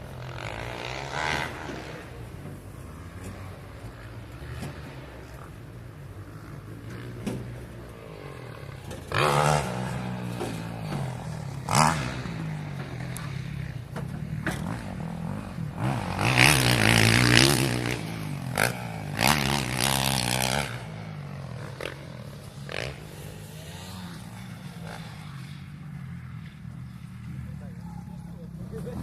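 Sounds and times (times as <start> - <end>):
motorbike revving loudly: 0.0 - 27.7
motocross engines humming: 0.0 - 29.0.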